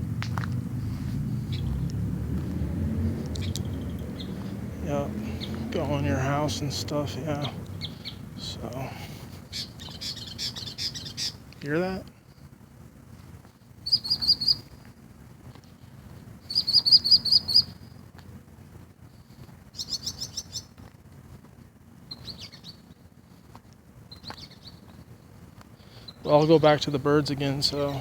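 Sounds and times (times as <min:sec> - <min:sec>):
birds calling: 0:00.0 - 0:12.1, 0:13.8 - 0:14.8, 0:16.4 - 0:18.0, 0:19.7 - 0:21.0, 0:22.1 - 0:23.4, 0:24.0 - 0:25.2, 0:25.8 - 0:28.0.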